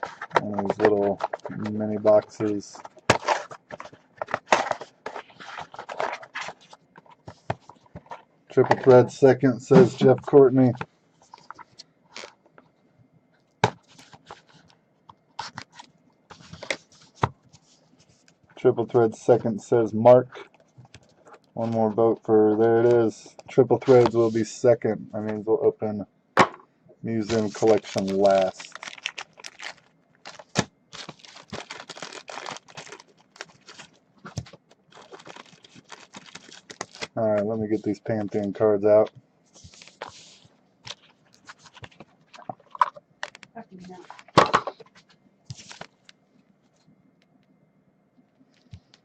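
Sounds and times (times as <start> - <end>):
packaging rustling: 0.0 - 9.1, 27.3 - 37.2, 39.6 - 46.2.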